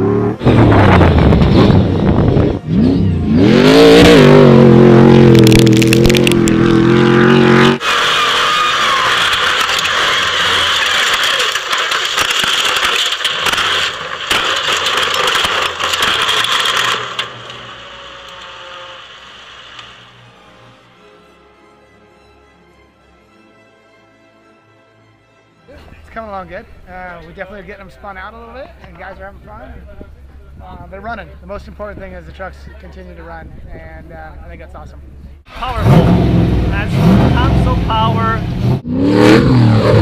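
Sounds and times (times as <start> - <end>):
truck engine revving: 0.0 - 20.9, 35.4 - 40.0.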